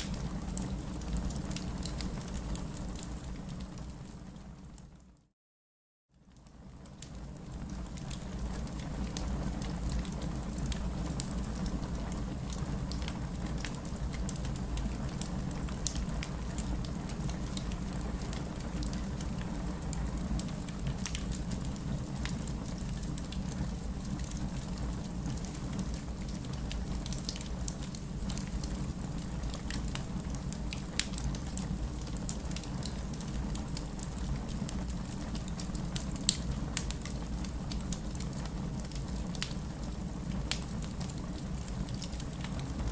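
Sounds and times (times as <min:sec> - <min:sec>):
fire rumbling: 0:06.8 - 0:42.9
logs crackling and popping: 0:10.6 - 0:42.9.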